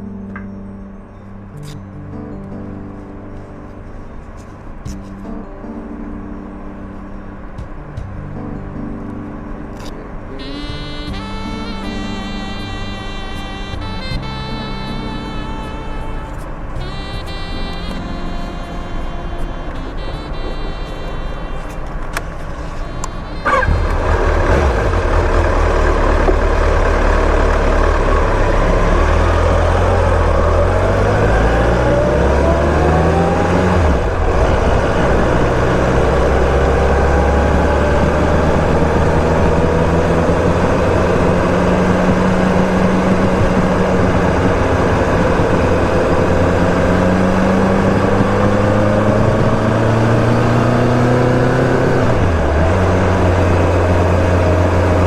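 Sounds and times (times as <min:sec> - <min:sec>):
wind noise: 0:07.2 - 0:55.0
motorcycle engine revving: 0:22.6 - 0:55.0.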